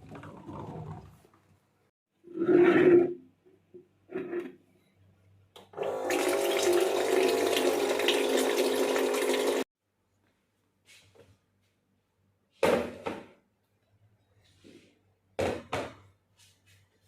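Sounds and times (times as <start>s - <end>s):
water running from a tap: 6.0s - 9.7s.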